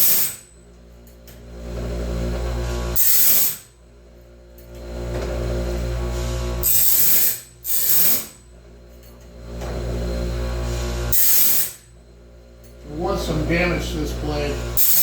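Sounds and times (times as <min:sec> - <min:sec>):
grinding wheel on saw teeth: 0:00.0 - 0:00.5, 0:02.5 - 0:03.7, 0:06.6 - 0:08.4, 0:10.6 - 0:11.8, 0:13.0 - 0:15.0
motor hum: 0:00.0 - 0:15.0.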